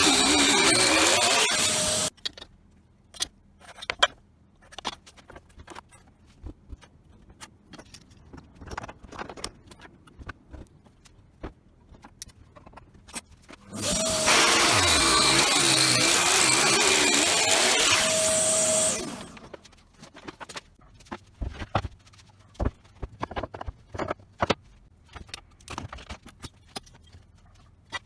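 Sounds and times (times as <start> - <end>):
power tool running: 0.0 - 2.1, 13.6 - 19.6.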